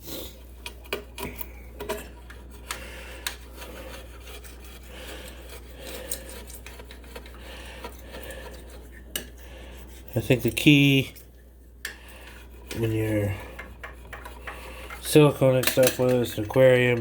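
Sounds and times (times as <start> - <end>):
razor blade scraping glass: 1.9 - 10.7.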